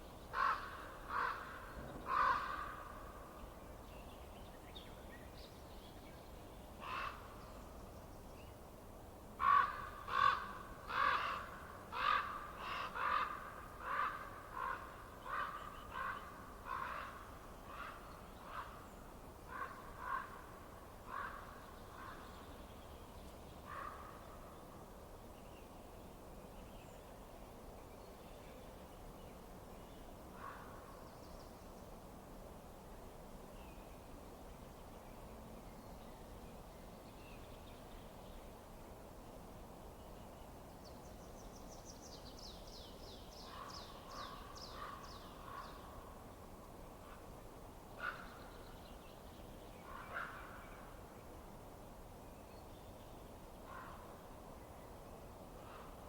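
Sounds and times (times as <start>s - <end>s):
faint steady hiss: 0.0s - 56.0s
crow cawing: 0.4s - 2.8s, 9.4s - 18.7s.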